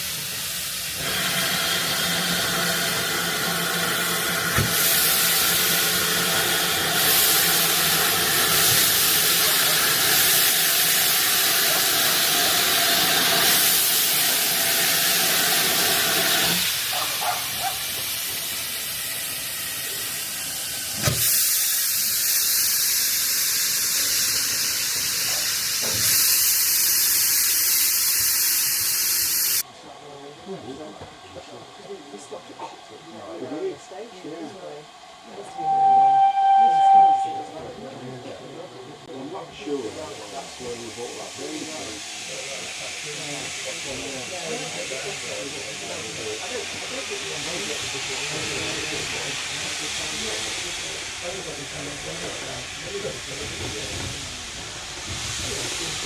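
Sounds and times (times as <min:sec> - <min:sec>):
steam locomotive venting steam: 0:00.0 - 0:30.2, 0:30.8 - 0:56.0.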